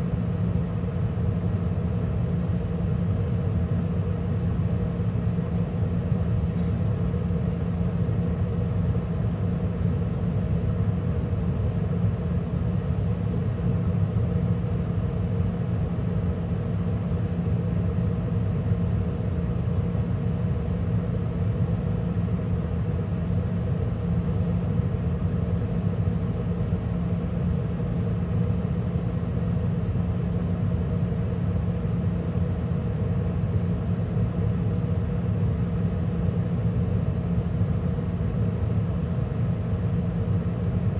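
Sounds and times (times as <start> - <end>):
gas furnace running: 0.0 - 40.9.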